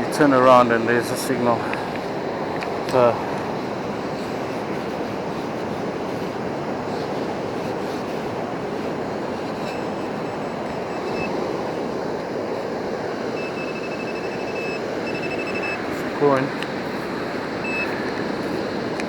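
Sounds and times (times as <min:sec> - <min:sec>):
surf washing on beach: 0:00.0 - 0:19.0
metal detector high tone: 0:09.4 - 0:12.2, 0:13.1 - 0:16.5, 0:17.6 - 0:18.1.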